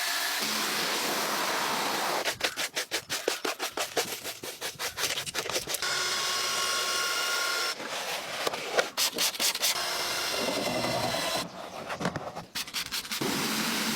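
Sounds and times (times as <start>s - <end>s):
brush scrubbing a surface: 0.5s - 5.8s, 12.6s - 13.9s.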